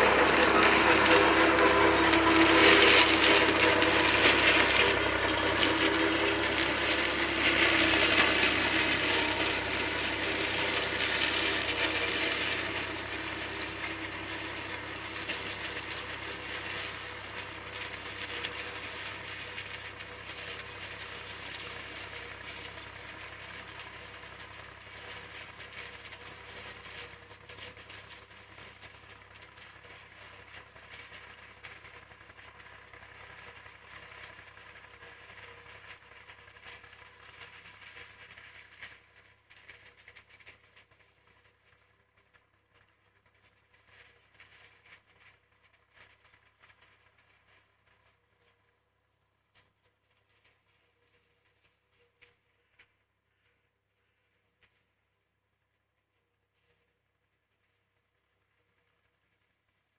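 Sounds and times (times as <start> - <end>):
machinery rattling: 0.0 - 38.9
tractor engine hum: 0.0 - 59.9.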